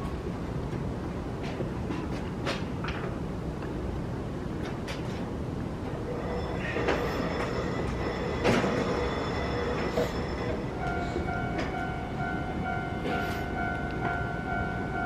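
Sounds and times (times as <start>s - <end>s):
electric train high-pitched hum: 5.5s - 15.0s.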